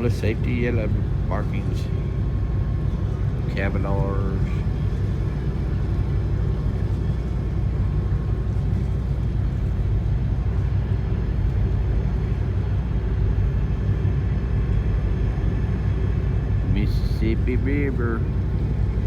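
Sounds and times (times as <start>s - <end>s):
diesel engines droning: 0.0s - 19.0s.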